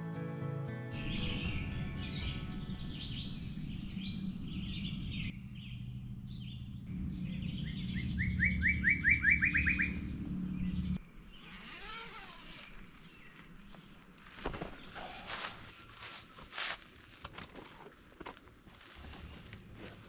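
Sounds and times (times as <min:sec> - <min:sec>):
quick rising bird notes: 0:01.0 - 0:05.3, 0:06.9 - 0:11.5
steady low background noise: 0:01.0 - 0:11.0
wild birds singing and chirping: 0:01.0 - 0:11.6.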